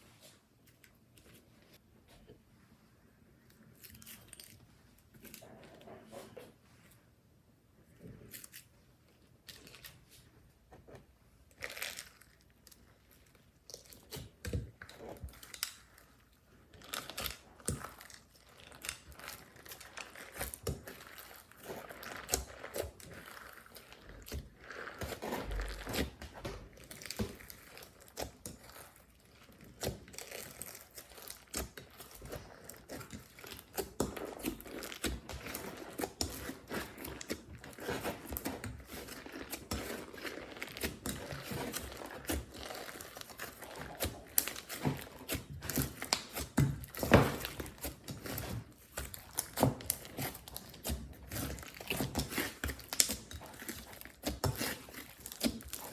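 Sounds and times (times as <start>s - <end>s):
slime squeezed with sticky crackling: 11.5s - 55.9s.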